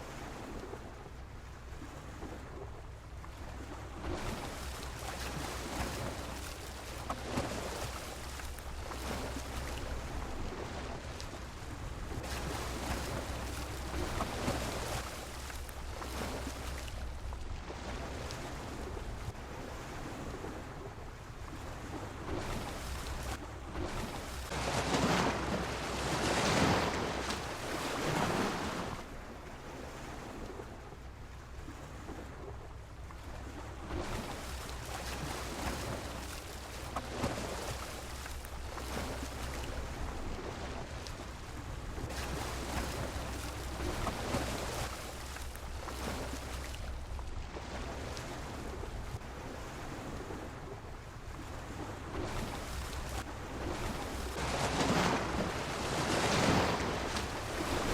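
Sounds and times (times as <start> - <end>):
sea waves breaking against pier: 0.0 - 57.9
wind rumble on microphone: 0.0 - 57.9.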